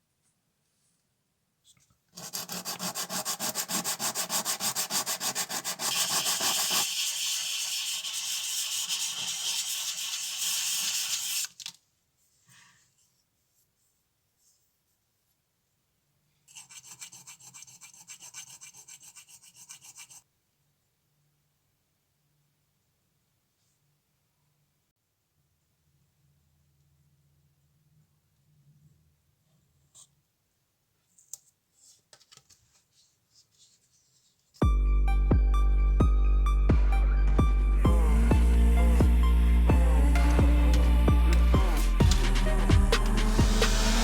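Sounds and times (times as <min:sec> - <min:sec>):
rapid rubbing strokes: 0:02.2 - 0:11.5, 0:38.0 - 0:44.0.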